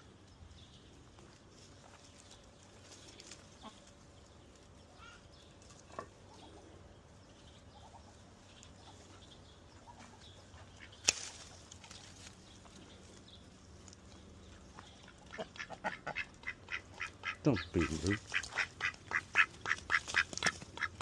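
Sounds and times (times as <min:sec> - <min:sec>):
fowl calling: 0:15.3 - 0:21.0.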